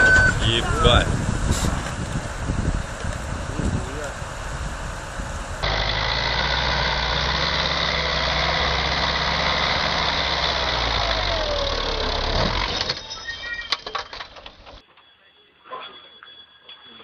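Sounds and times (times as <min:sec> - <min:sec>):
heavy vehicle engine running: 0:00.0 - 0:13.1.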